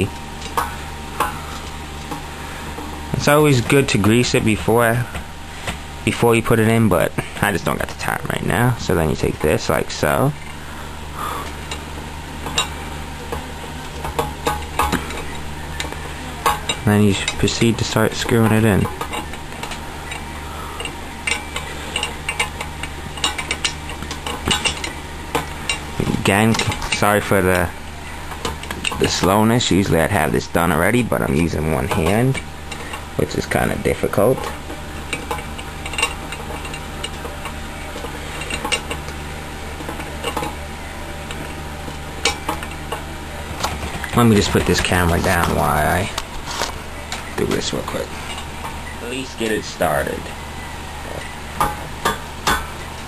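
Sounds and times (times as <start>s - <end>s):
steady low hum: 0.0s - 53.0s
metal bicycle parts clicking: 12.4s - 27.3s, 31.8s - 39.2s.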